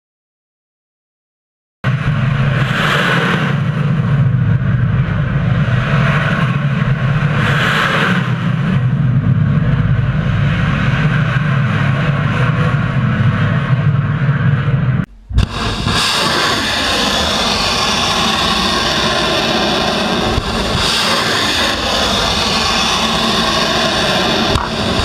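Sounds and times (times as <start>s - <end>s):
low hum: 14.8s - 20.8s
missile launch roar: 15.1s - 25.0s.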